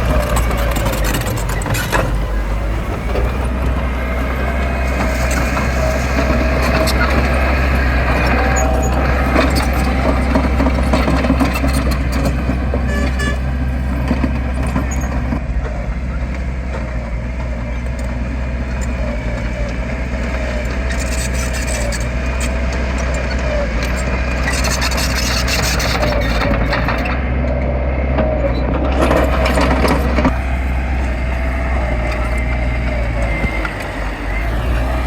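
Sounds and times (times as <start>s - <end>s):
rough clattering noise: 0.0s - 15.4s
heavy diesel machinery running: 0.0s - 35.0s.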